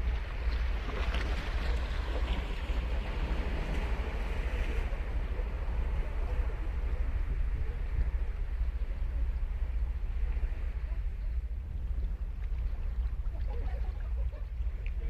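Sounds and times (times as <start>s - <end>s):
wave breaking on shore: 0.0s - 8.6s
low surf rumble: 0.0s - 15.0s.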